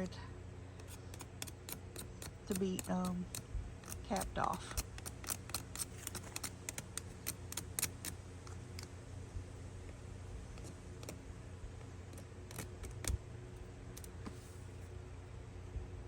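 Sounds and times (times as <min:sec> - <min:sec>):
hand tools clicking and snipping plastic: 0:00.8 - 0:08.9, 0:12.1 - 0:13.2.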